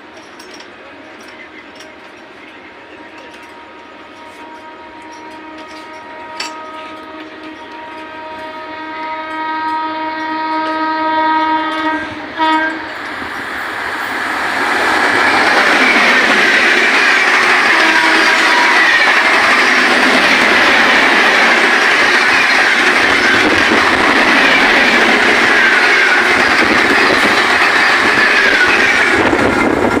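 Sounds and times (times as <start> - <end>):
train rushing past: 1.2 - 30.0
train horn: 3.2 - 13.0, 16.9 - 29.8.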